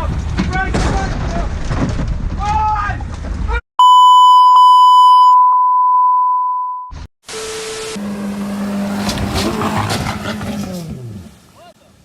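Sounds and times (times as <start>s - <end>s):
censor bleep tone: 3.8s - 8.0s.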